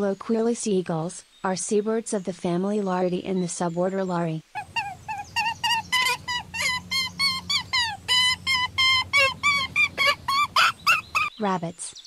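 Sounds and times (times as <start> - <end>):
gull yelping calls: 4.6 - 11.3.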